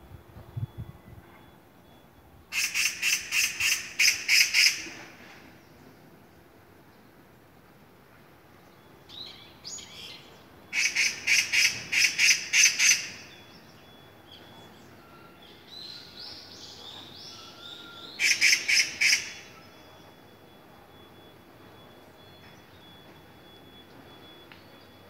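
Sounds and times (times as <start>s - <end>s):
bird calling repeated notes: 2.5s - 5.2s, 9.1s - 14.7s, 15.6s - 25.0s.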